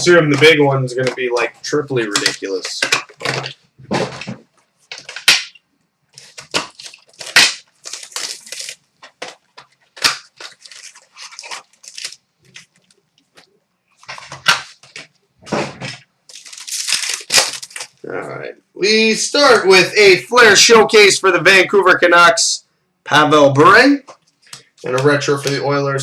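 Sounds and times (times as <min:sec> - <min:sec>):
cards rustling: 0:00.0 - 0:05.5, 0:06.1 - 0:15.1, 0:16.3 - 0:18.0
foil packaging tearing and crinkling: 0:06.1 - 0:13.0, 0:16.3 - 0:18.0.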